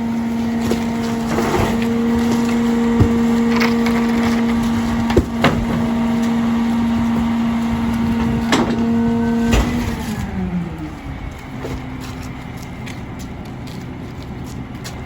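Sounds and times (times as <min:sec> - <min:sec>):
hydraulic whine: 0:00.0 - 0:12.3
garbage truck engine: 0:00.0 - 0:15.0
metal clanks: 0:08.0 - 0:10.0.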